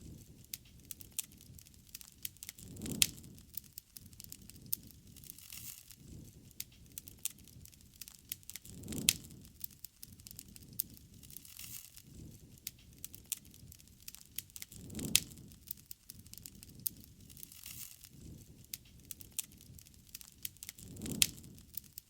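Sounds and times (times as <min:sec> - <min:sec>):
campfire crackling and popping: 0:00.0 - 0:22.0
fire flaring with low rush: 0:00.0 - 0:22.0.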